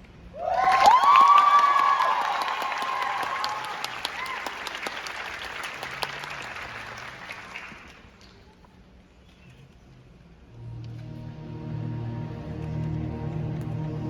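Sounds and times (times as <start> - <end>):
audience applauding: 0.4 - 8.4.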